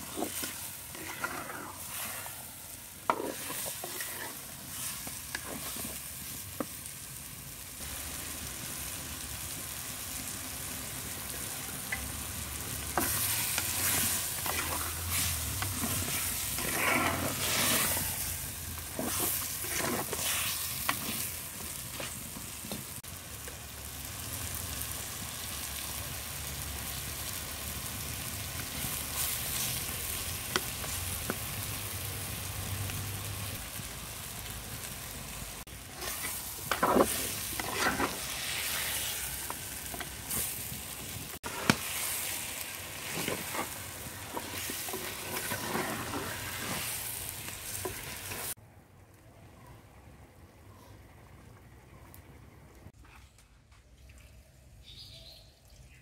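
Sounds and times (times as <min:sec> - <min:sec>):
metal spoon scraping pot: 0:00.0 - 0:02.1, 0:03.1 - 0:04.5, 0:13.0 - 0:18.2, 0:35.9 - 0:38.3
chicken sizzling in pot: 0:00.0 - 0:48.6.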